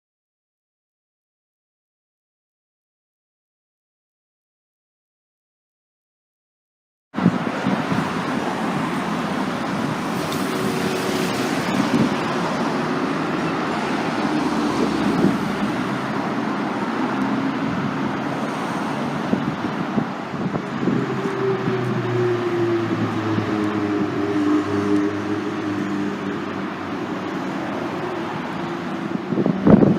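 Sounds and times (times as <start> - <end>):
tyre noise from passing vehicles: 7.2 - 29.9.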